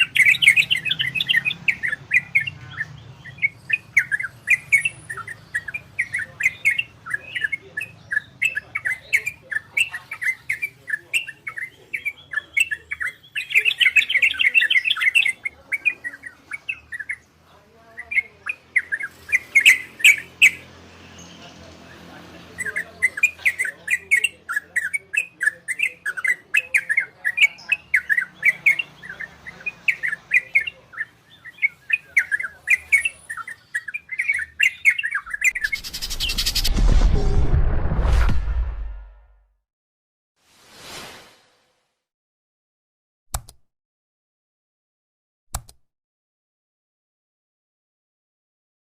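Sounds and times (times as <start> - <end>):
bird singing bright chirps: 0.0 - 36.7.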